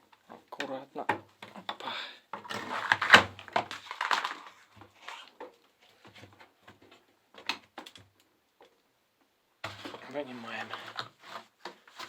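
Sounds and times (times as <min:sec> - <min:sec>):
rubbing and scraping rubber seal: 0:09.6 - 0:12.0.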